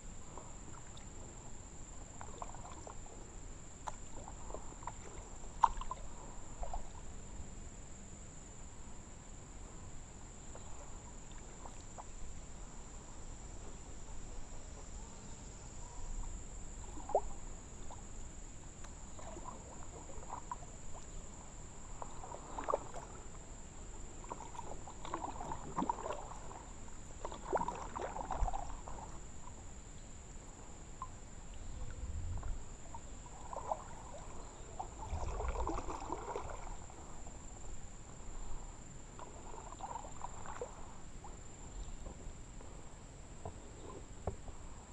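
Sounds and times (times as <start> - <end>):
paddle dipping into water: 0.3 - 7.2, 16.2 - 44.7
water splashes and drips: 2.2 - 3.0, 3.8 - 6.0, 22.0 - 23.2, 24.3 - 26.6, 27.2 - 29.0, 32.4 - 36.9.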